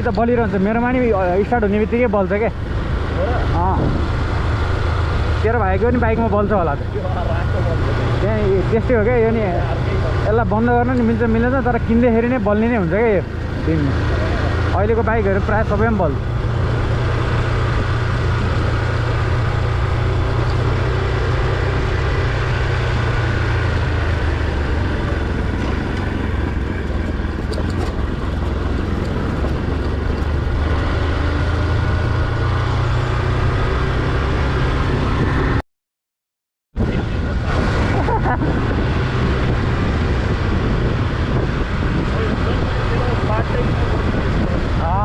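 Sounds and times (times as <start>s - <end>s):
motorcycle engine running: 0.0s - 35.6s
road noise: 0.0s - 35.6s, 36.8s - 45.0s.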